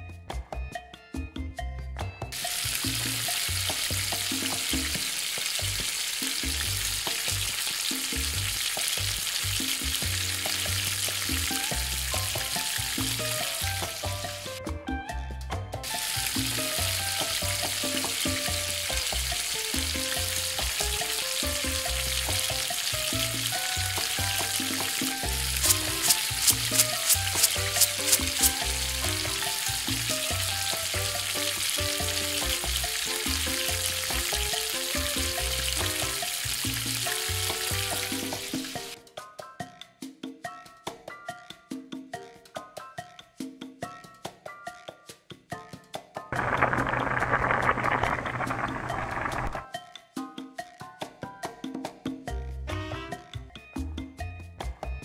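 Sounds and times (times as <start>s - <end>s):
light background music: 0.0s - 46.3s
food sizzling in a frying pan: 2.4s - 14.6s, 15.8s - 39.0s, 46.4s - 49.6s.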